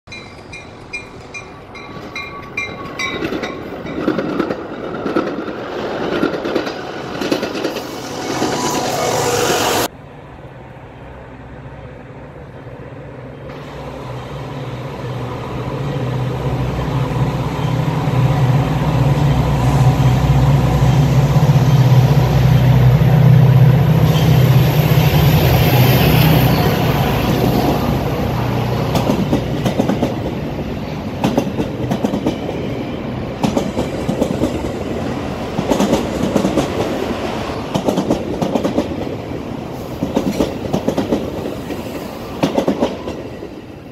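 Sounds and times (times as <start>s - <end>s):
rail clicks: 0.1s - 9.9s, 24.1s - 43.6s
rail ringing tones: 0.1s - 9.9s, 13.4s - 36.9s
train passing with rumble: 0.1s - 43.9s.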